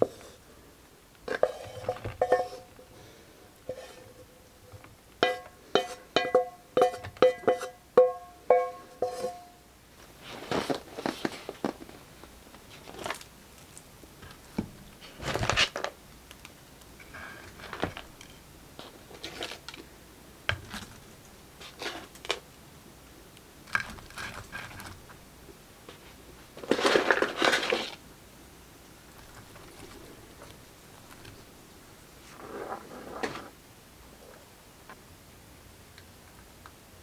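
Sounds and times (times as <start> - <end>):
food packaging crinkling: 10.2 - 18.2, 18.8 - 19.9, 26.6 - 28.0, 29.1 - 31.4.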